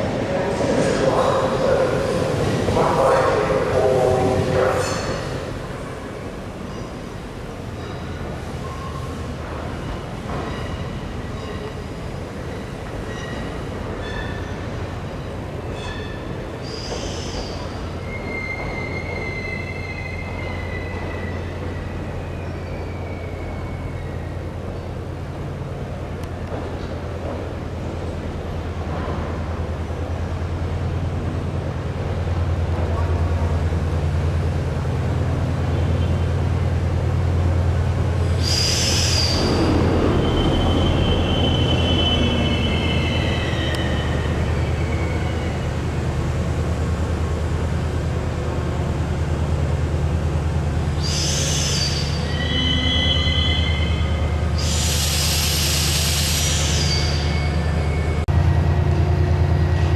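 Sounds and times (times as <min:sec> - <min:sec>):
train wheels rumbling on rail: 0:00.0 - 0:59.9
high wheel squeals: 0:15.7 - 0:24.5, 0:38.4 - 0:45.7, 0:51.0 - 0:58.2.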